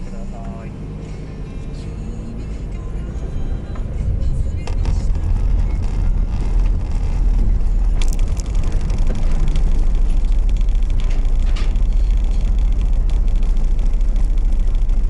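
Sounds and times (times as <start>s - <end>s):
car interior low rumble: 0.0s - 15.0s.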